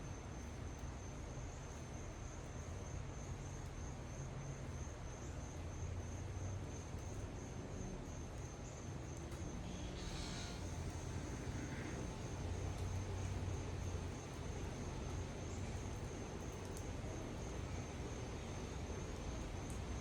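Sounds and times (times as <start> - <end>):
insects trilling: 9.4 - 16.2.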